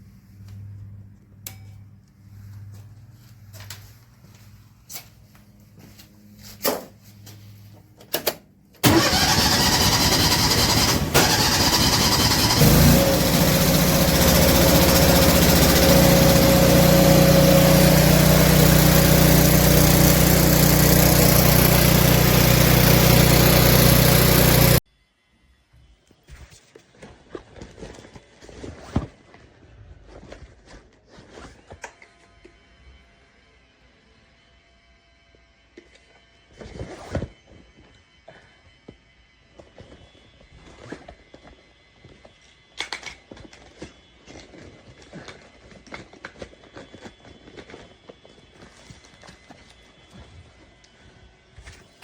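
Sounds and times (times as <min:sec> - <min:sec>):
car engine idling: 0:08.8 - 0:19.0
car engine cranking: 0:08.8 - 0:24.8.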